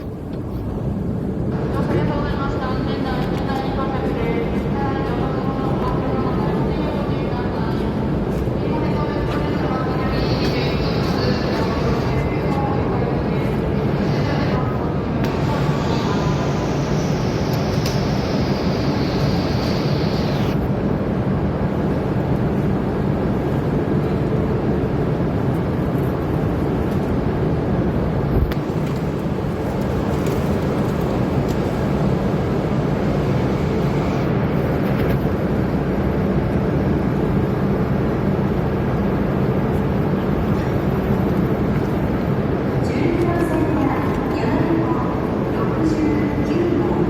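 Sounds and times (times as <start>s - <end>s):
high hiss: 15.2s - 20.6s.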